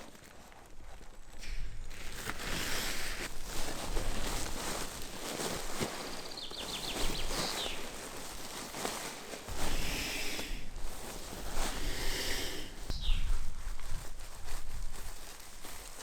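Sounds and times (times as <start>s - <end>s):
rustling: 0.0s - 16.0s.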